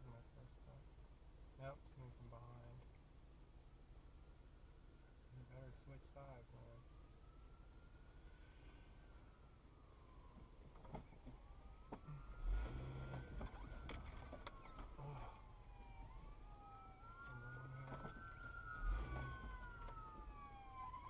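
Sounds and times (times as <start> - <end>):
emergency vehicle siren wailing: 5.5 - 21.0.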